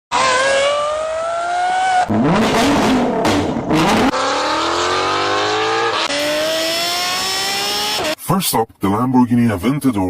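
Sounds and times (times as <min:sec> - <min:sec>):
sports car engines accelerating: 0:00.1 - 0:08.2.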